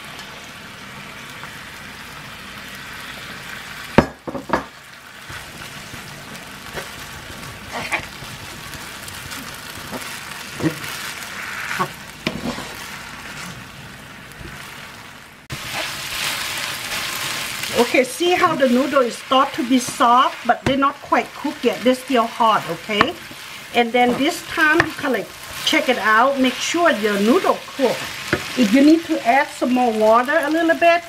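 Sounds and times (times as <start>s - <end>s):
noodles and beef sizzling in pan: 0.0s - 31.0s
wooden spatula knocking on pan: 22.9s - 23.2s.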